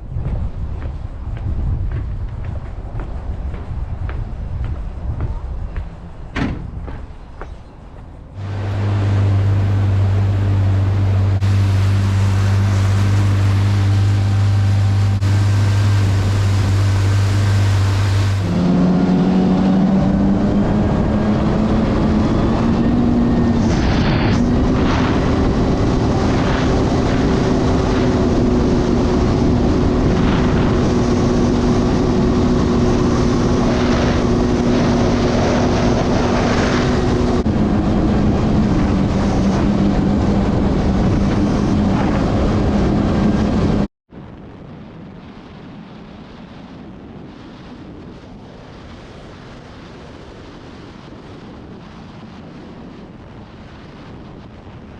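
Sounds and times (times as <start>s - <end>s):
wind and water rushing: 8.2s - 54.9s
jet ski engine running: 8.4s - 43.9s.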